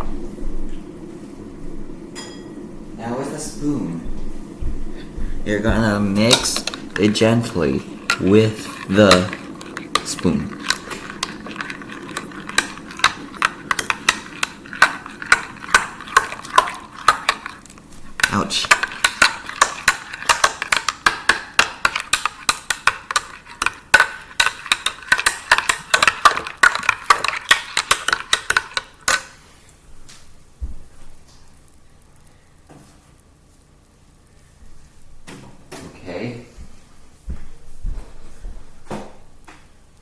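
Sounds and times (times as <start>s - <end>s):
spoon clinking in a cup: 6.2s - 17.6s, 18.2s - 29.2s.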